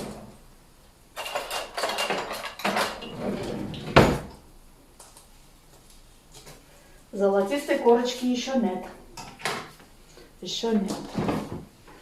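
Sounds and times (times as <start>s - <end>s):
dishes and utensils clattering: 1.2s - 4.3s.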